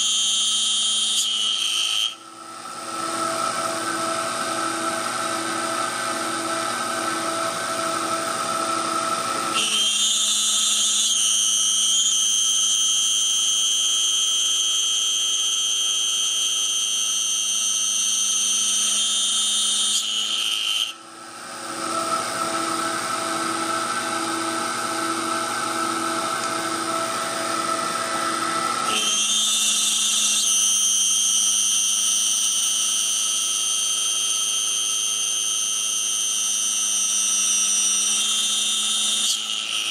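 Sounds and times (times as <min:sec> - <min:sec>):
machine hum: 0:02.3 - 0:09.6, 0:21.1 - 0:29.2
high-pitched whine: 0:21.2 - 0:38.2.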